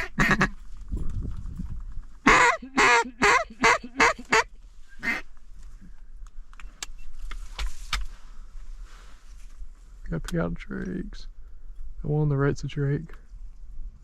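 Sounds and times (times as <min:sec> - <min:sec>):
duck call raspy quacks: 0:00.0 - 0:00.6, 0:02.2 - 0:05.2.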